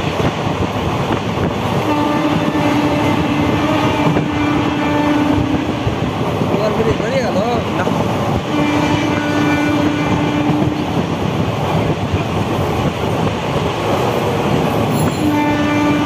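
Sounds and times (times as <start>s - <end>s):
train wheels rumbling on track: 0.0s - 16.0s
train horn blast: 1.8s - 5.8s, 8.4s - 11.0s, 14.9s - 16.0s.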